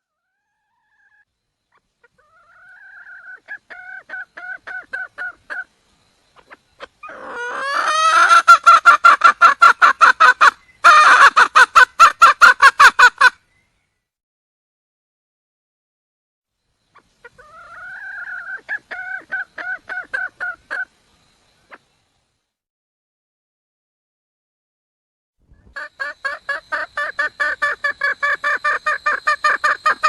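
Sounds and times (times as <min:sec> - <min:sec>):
hen clucking: 0:00.6 - 0:05.7, 0:06.4 - 0:13.4, 0:16.9 - 0:20.9, 0:25.6 - 0:30.0.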